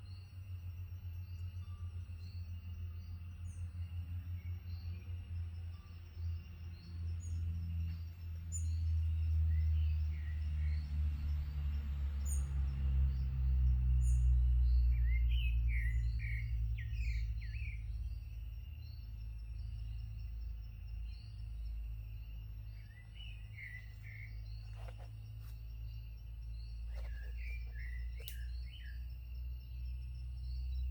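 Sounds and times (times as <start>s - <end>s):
forest birds chirping: 0.0s - 30.9s
insect hum: 0.0s - 30.9s.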